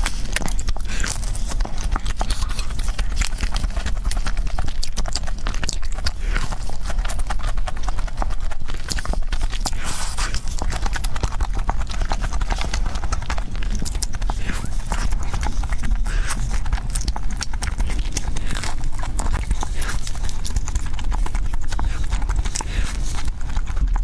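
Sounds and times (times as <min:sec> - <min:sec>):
fast chewing mouth smacks: 0:00.0 - 0:24.0.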